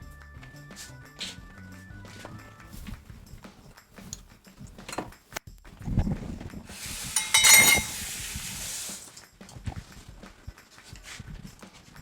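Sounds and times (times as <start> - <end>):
glass clinks: 6.8 - 8.2
drink pouring into a glass: 6.8 - 9.2.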